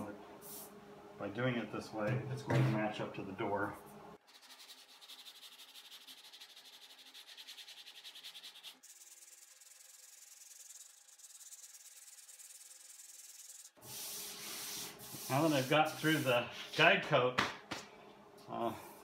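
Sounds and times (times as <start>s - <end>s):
hand sanding metal: 4.3s - 16.8s.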